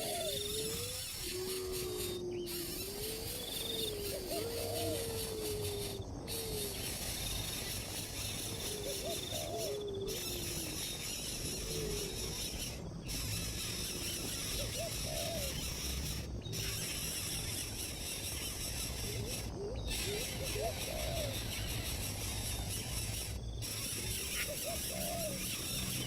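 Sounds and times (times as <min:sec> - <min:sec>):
low whistled bird calls: 0:00.0 - 0:26.0
steady hiss: 0:10.2 - 0:26.0.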